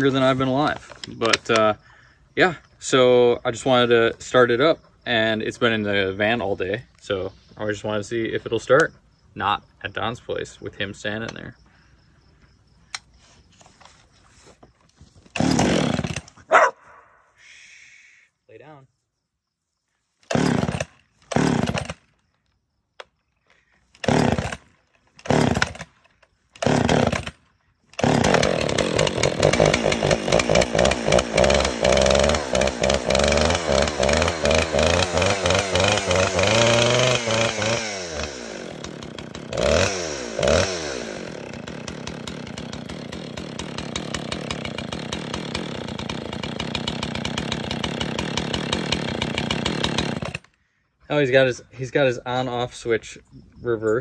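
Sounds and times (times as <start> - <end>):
chainsaw pull-start: 0.0 - 1.8, 15.1 - 16.6, 20.2 - 22.3, 23.0 - 50.6
chainsaw revving and idling: 0.0 - 1.8, 15.2 - 16.7, 20.2 - 22.4, 23.9 - 50.6.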